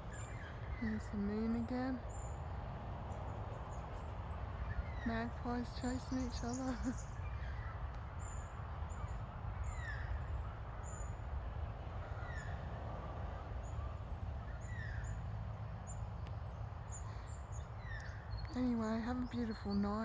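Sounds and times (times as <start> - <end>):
high chirps of small birds: 0.0 - 11.3, 13.6 - 20.0
magpies calling: 0.0 - 11.3, 12.0 - 16.0
low background rumble: 0.0 - 20.0.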